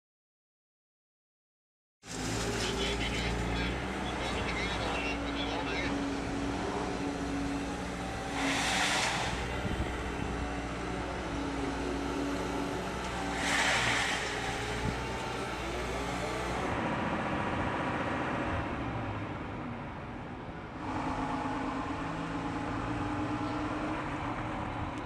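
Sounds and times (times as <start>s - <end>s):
heavy machinery engine running: 2.1s - 18.6s, 20.7s - 25.0s
loud hissing rushes: 8.2s - 9.9s, 13.2s - 15.1s.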